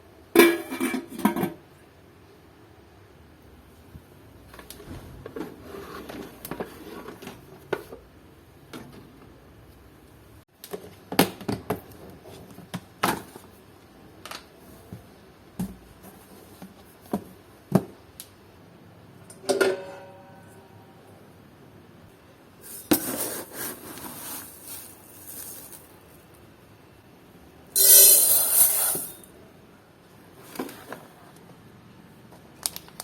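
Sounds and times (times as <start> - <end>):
kitchen utensils clicking and knocking: 27.8 - 29.2.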